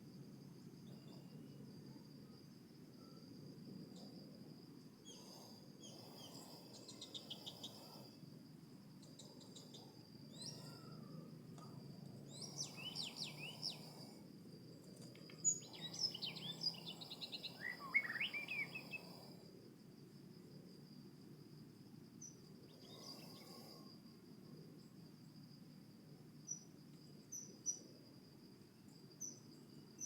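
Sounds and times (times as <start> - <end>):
high-pitched insect trill: 0.0 - 30.0
songbird chirps: 5.8 - 8.0, 12.2 - 14.1, 15.0 - 19.2, 26.4 - 28.0.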